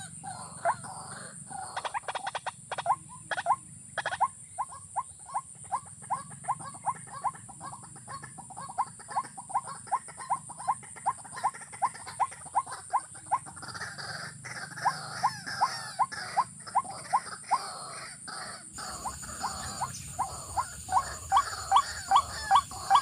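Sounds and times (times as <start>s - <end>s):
bird calling rising notes: 18.8s - 23.0s
steady high buzz: 18.8s - 23.0s.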